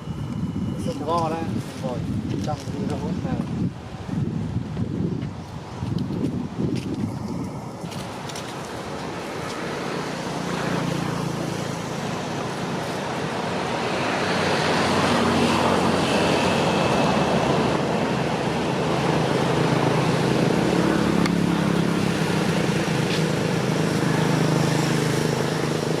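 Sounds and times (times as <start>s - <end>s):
vehicle engine humming: 6.2s - 26.0s.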